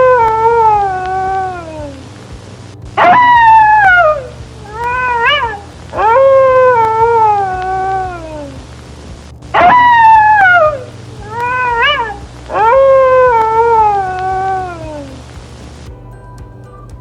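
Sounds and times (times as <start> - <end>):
fox howling: 2.9 - 8.8.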